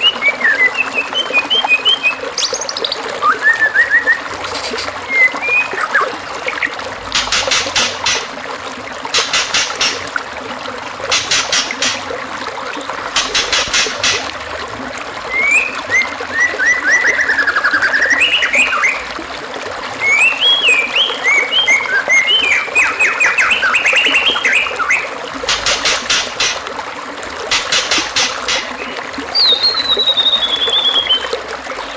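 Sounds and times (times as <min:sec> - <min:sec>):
songbird singing: 0:00.0 - 0:08.3, 0:15.3 - 0:19.1, 0:20.0 - 0:26.3, 0:27.5 - 0:31.9
running water trickling: 0:00.0 - 0:31.9.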